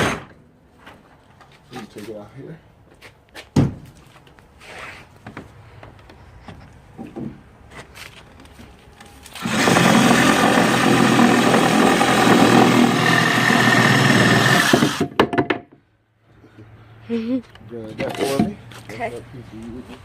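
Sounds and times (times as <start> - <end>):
power saw cutting wood: 9.4 - 15.2.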